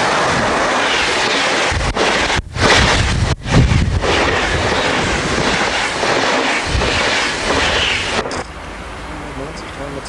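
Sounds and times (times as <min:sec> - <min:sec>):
train rushing past: 0:00.0 - 0:10.0
wind on microphone: 0:00.0 - 0:10.0.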